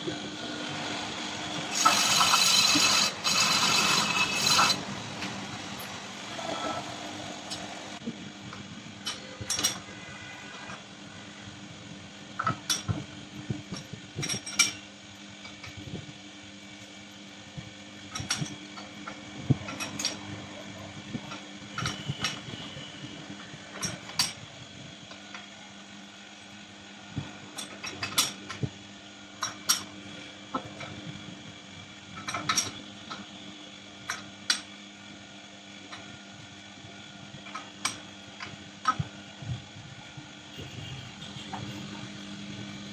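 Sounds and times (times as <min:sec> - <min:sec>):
metal lathe humming: 0:00.0 - 0:08.0.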